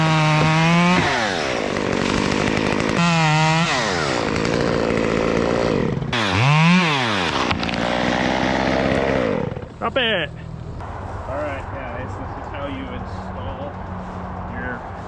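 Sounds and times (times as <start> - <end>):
chainsaw revving: 0.0 - 9.7.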